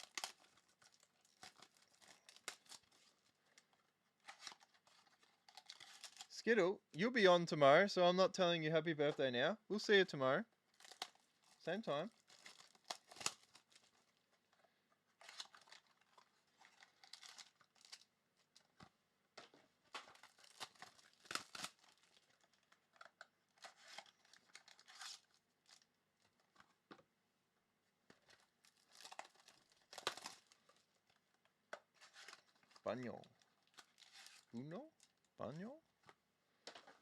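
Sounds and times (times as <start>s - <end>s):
wrappers tearing and rustling: 0.0s - 6.4s, 10.7s - 14.4s, 15.2s - 18.7s, 19.9s - 26.7s, 28.2s - 31.2s, 31.9s - 35.3s.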